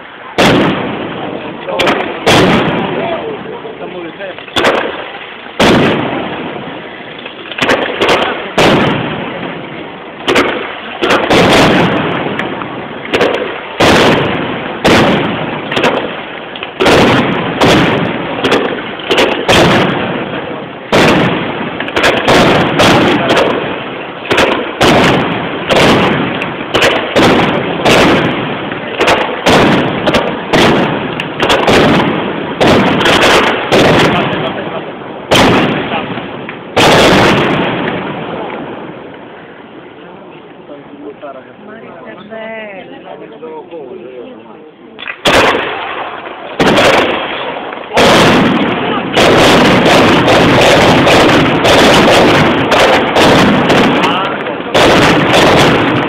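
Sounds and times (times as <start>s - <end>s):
fireworks bursting with echo: 0.0s - 43.7s, 44.9s - 56.0s.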